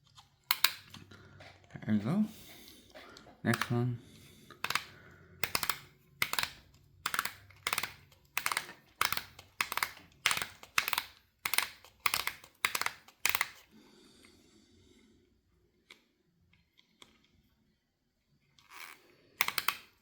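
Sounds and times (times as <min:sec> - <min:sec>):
plastic winch crank clicking: 0:00.0 - 0:01.0, 0:03.5 - 0:03.8, 0:04.6 - 0:13.7, 0:18.6 - 0:20.0.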